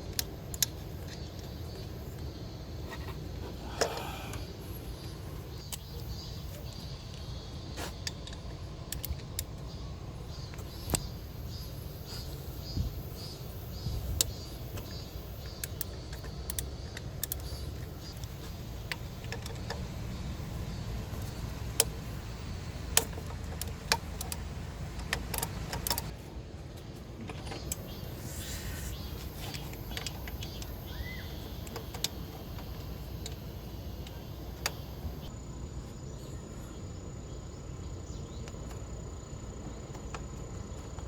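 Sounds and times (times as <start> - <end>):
low steady rumble: 15.4 - 27.2.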